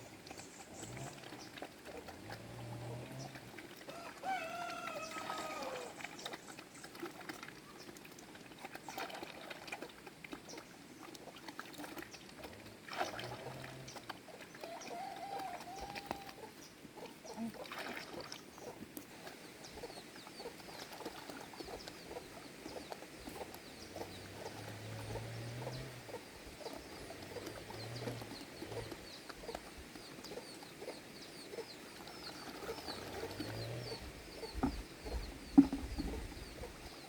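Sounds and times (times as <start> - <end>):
chickens clucking: 19.7 - 31.8, 32.5 - 37.0.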